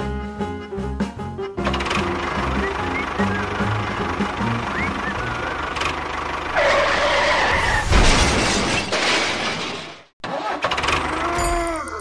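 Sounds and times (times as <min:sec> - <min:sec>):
vehicle running noise: 0:00.0 - 0:07.8.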